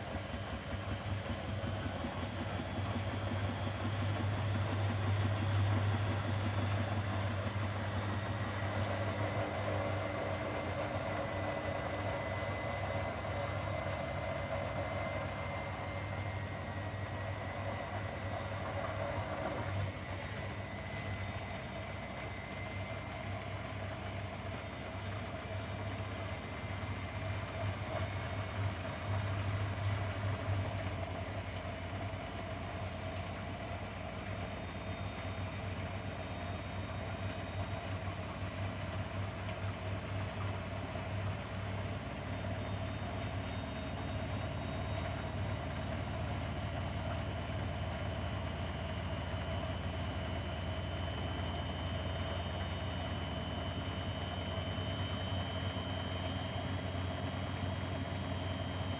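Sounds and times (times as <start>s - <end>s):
washing machine humming: 0.0s - 58.9s
faint high whine: 40.8s - 58.9s.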